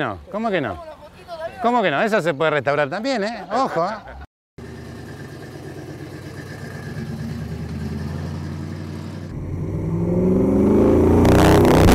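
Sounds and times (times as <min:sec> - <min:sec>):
car engine running and revving: 0:04.6 - 0:11.9.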